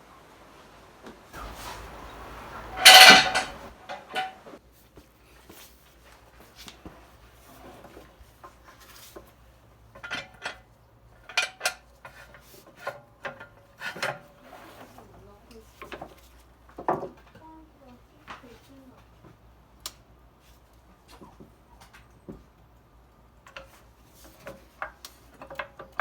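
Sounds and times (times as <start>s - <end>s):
metal jack stand clank: 2.5s - 4.4s, 10.0s - 12.2s
light metal clinks and knocks: 2.7s - 4.5s, 8.4s - 14.3s.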